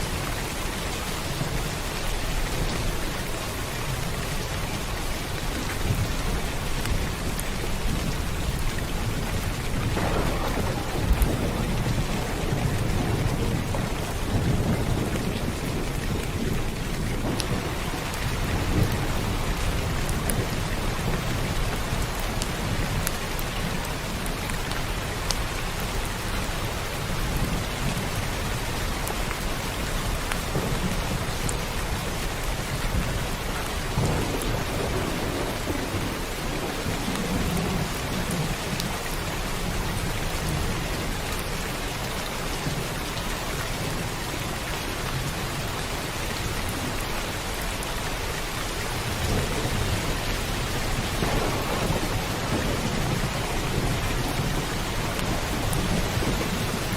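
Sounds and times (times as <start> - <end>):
heavy rain falling: 0.0 - 56.9
low rolling thunder: 1.2 - 24.2, 27.2 - 41.1, 48.7 - 56.9
raindrops ticking: 1.3 - 43.9.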